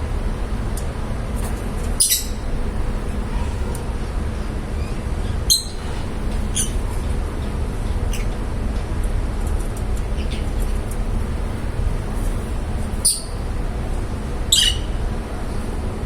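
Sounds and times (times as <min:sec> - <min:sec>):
lovebirds chirping: 0:02.0 - 0:02.6, 0:05.5 - 0:06.8, 0:12.9 - 0:13.5, 0:14.5 - 0:15.0.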